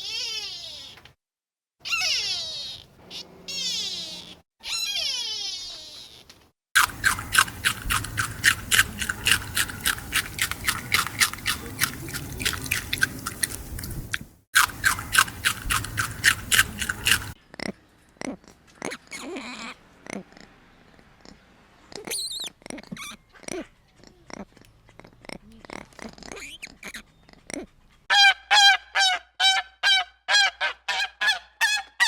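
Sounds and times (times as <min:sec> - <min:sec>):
animal chewing crunchy food: 0:06.8 - 0:18.9.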